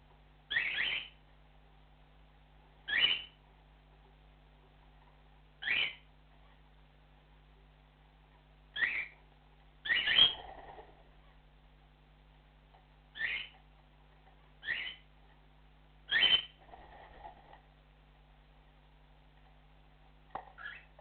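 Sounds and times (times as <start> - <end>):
cockatiel whistled calls: 0.5 - 1.2, 2.9 - 3.4, 5.6 - 6.0, 8.8 - 9.2, 9.8 - 10.5, 13.2 - 13.6, 14.6 - 15.0, 16.1 - 16.6, 20.6 - 20.9
soft bird chattering: 0.5 - 1.2, 2.9 - 3.4, 5.0 - 6.6, 8.8 - 9.2, 9.8 - 11.4, 13.2 - 13.6, 14.4 - 15.1, 16.1 - 17.3, 20.5 - 21.0.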